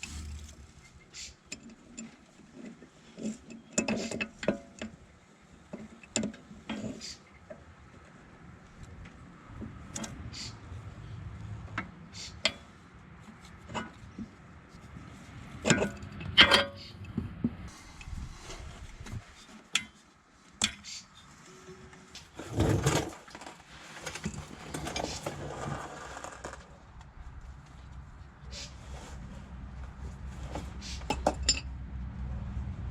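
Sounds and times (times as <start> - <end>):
rustle: 17.7 - 31.7
tools and metal parts clinking: 31.0 - 31.7.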